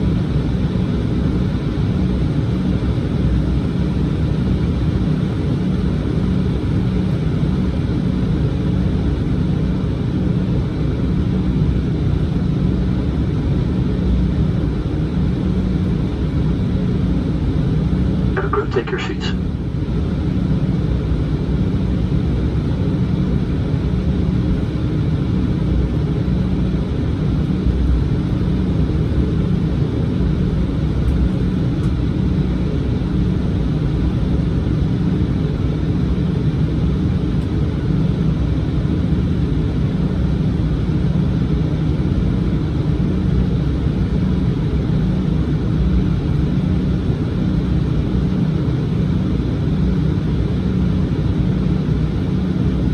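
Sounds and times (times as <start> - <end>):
jet cabin rumble: 14.4 - 42.8.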